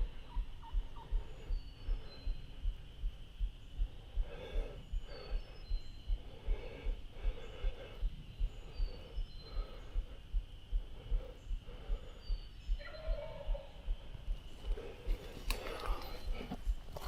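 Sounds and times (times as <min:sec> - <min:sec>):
person breathing hard: 0:00.0 - 0:12.9, 0:13.6 - 0:17.0
soft low thuds: 0:13.4 - 0:17.0.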